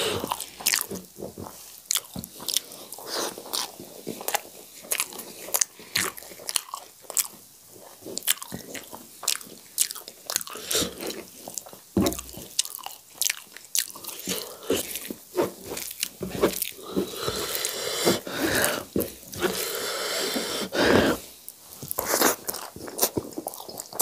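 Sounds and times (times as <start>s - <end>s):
fingers squishing food: 1.9s - 15.1s
wet chewing and mouth smacks: 3.4s - 11.7s, 12.4s - 14.8s, 21.8s - 24.0s.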